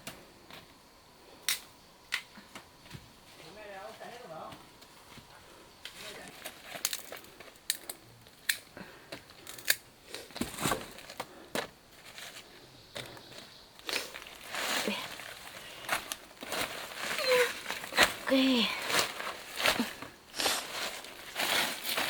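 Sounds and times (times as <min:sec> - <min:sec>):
dry leaves crackling and snapping: 0:05.9 - 0:11.2, 0:13.8 - 0:22.0.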